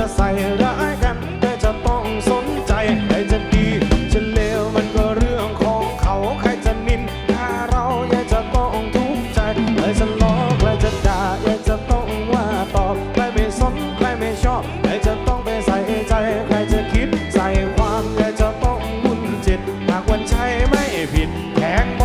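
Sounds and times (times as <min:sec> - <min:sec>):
drum kit beat: 0:00.0 - 0:22.0.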